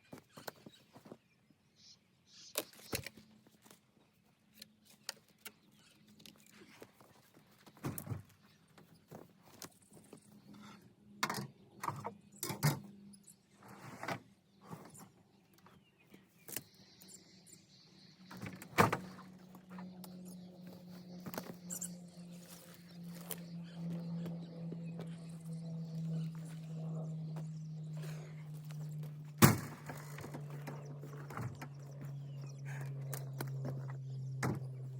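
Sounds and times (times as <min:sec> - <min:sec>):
low hum: 0:16.7 - 0:34.9.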